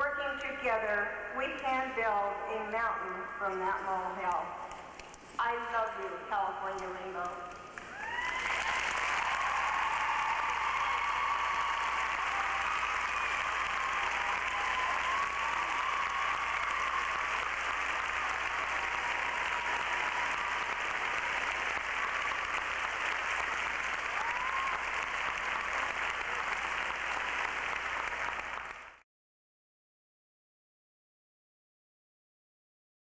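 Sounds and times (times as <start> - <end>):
large audience applauding: 7.8 - 29.0.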